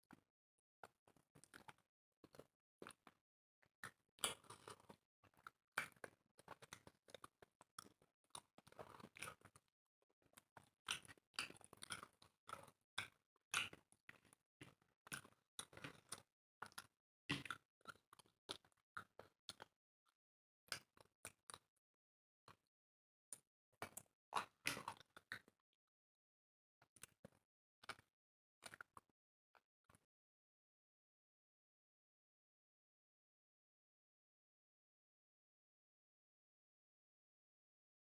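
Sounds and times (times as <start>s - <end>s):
people chewing and eating: 0.8s - 3.2s, 3.8s - 19.7s, 23.8s - 25.6s, 26.9s - 29.1s.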